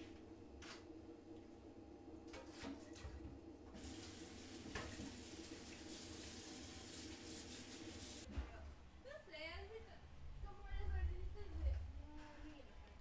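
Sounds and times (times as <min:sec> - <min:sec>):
water tap running: 0:03.8 - 0:08.3.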